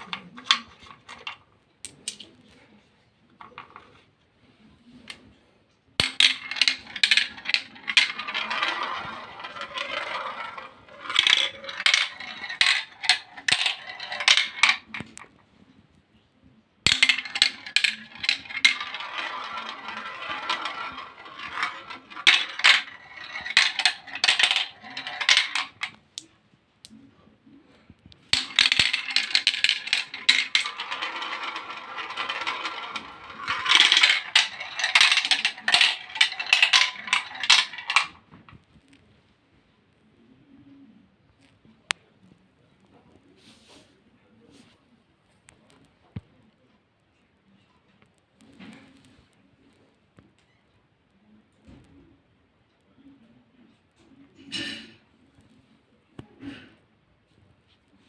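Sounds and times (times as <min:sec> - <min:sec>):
dominoes toppling: 0:00.0 - 0:02.3, 0:06.0 - 0:15.3, 0:16.9 - 0:26.0, 0:28.3 - 0:38.2.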